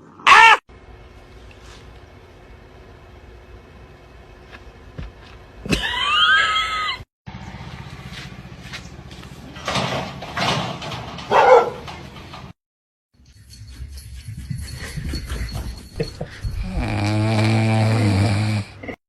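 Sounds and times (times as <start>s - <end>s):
pet animal calls: 0.2s - 0.6s.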